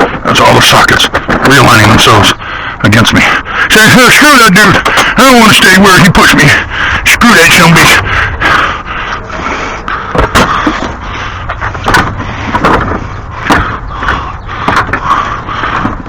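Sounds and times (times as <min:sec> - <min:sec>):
low rumble: 0:07.8 - 0:16.0.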